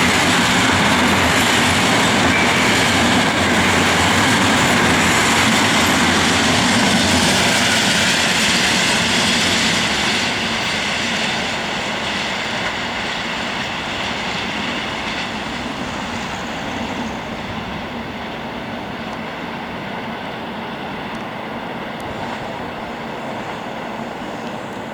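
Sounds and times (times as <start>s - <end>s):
freight train rolling on rails: 0.0s - 24.9s.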